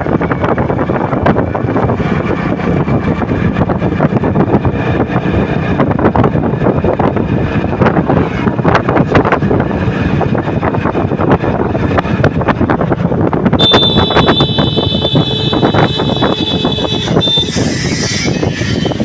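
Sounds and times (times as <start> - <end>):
moving vehicle rumbling and rattling: 0.0 - 19.0
high steady squeal: 13.6 - 19.0.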